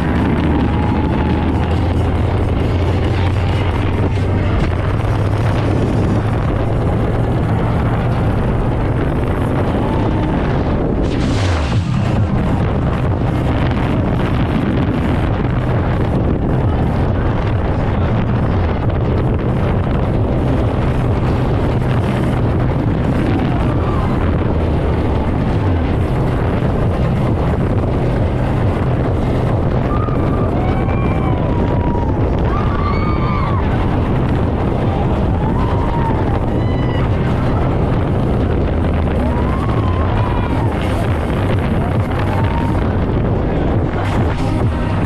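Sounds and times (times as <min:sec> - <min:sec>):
rushing wind and water: 0:00.0 - 0:45.0
speedboat engine drone: 0:00.0 - 0:45.0.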